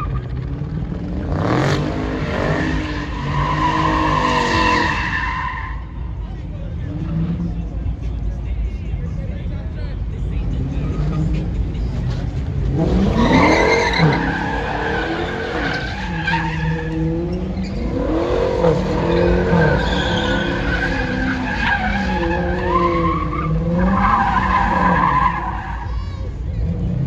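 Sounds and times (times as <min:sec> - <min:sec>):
car engine rumbling: 0:00.0 - 0:27.0
car tires squealing: 0:01.4 - 0:06.2, 0:10.6 - 0:26.8.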